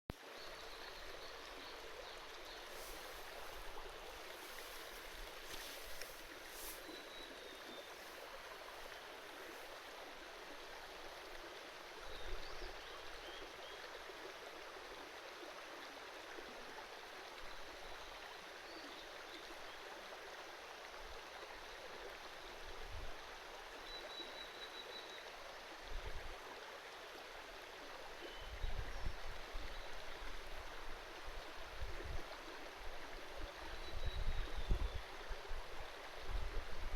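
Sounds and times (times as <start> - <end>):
river babbling over stones: 0.2 - 12.1.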